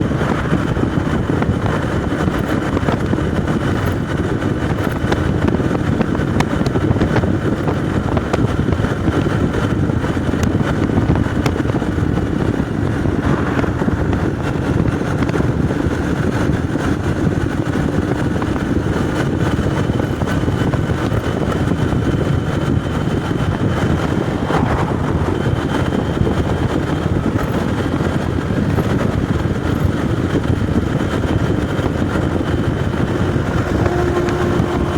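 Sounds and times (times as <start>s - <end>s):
road noise: 0.0s - 7.6s, 10.0s - 17.3s, 19.9s - 34.9s
motorcycle engine cruising: 18.8s - 34.9s.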